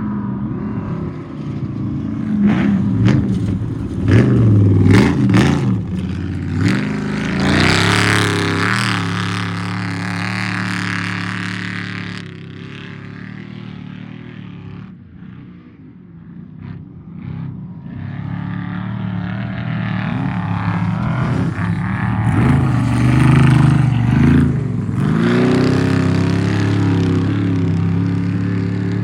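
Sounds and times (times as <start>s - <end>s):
engine accelerating hard: 0.0s - 29.0s
vehicle engine approaching: 0.0s - 29.0s.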